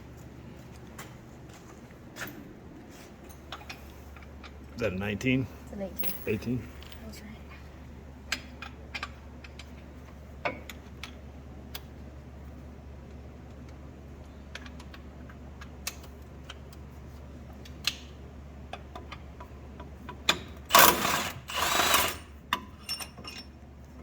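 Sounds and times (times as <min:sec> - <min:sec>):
power tool spinning bolt: 0:20.7 - 0:22.2.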